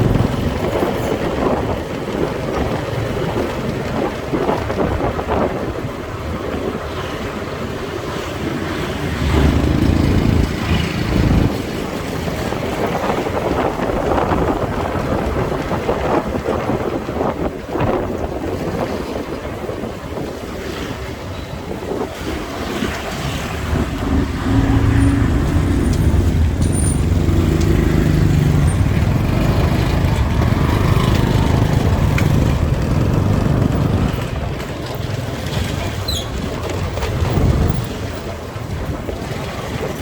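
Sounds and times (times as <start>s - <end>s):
road noise: 0.0s - 40.0s
wind rushing over microphone: 0.0s - 40.0s
motorbike engine: 8.4s - 13.4s, 23.0s - 40.0s
low rumble: 23.4s - 34.7s.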